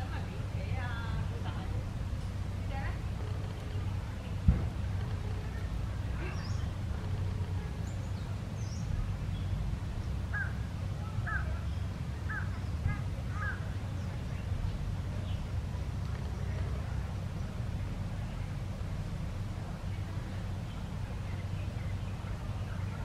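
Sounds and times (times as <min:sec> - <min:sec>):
low background rumble: 0:00.0 - 0:23.0
bird calling: 0:10.2 - 0:14.5.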